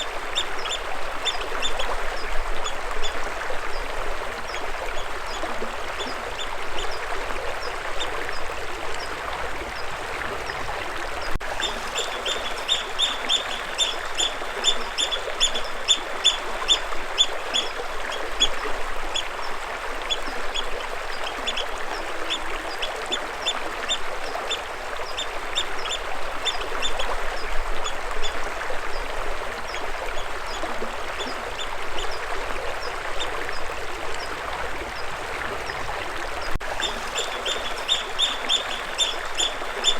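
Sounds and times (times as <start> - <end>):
bird chirping: 11.6 - 16.4, 36.8 - 39.9.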